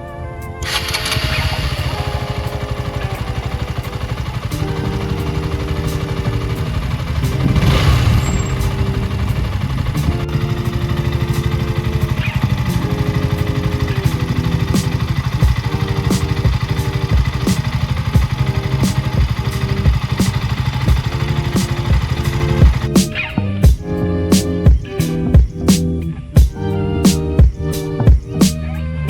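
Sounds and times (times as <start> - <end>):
motorcycle engine idling: 0.6 - 25.8.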